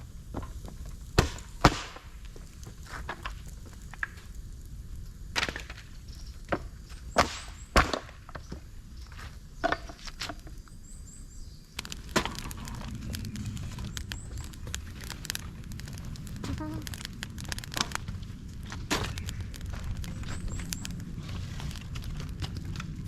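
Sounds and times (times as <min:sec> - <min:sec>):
low rustle: 0:11.8 - 0:23.0
sticks cracking and snapping: 0:11.8 - 0:23.0.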